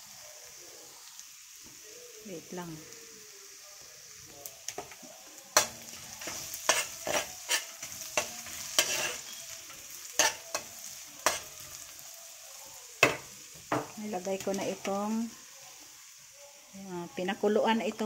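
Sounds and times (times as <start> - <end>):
garlic and ginger sizzling in butter: 0.0 - 18.0
spatula scraping and knocking wok: 5.6 - 11.9.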